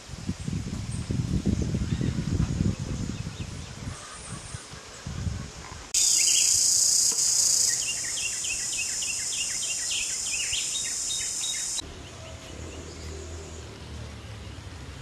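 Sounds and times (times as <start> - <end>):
high-pitched insect drone: 6.0 - 11.8
small bird chirping rapidly: 6.0 - 11.8.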